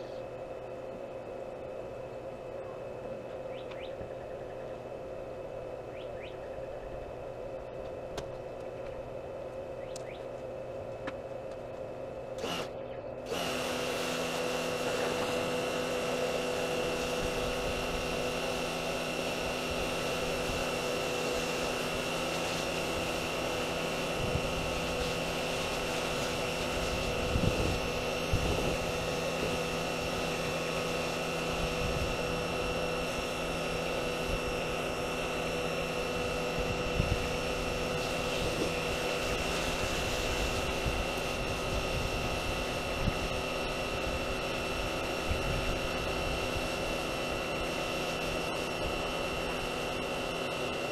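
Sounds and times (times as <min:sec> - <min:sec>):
motor humming and whining: 0:00.0 - 0:50.9.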